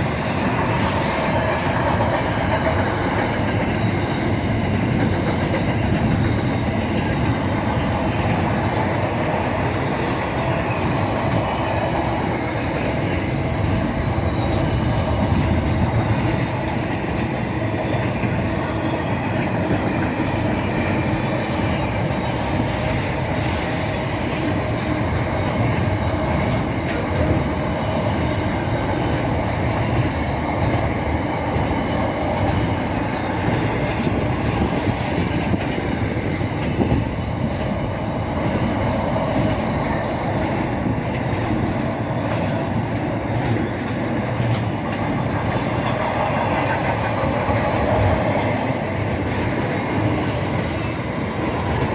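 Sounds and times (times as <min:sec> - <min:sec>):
train rumbling on track: 0:00.0 - 0:51.9.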